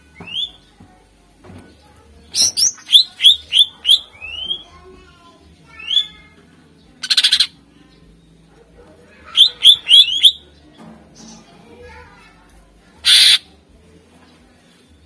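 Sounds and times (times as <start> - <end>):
bird singing sharp rising notes: 9.4 - 10.4.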